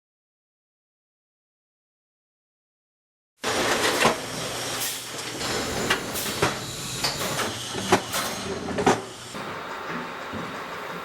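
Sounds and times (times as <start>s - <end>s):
machine running: 5.4s - 11.0s.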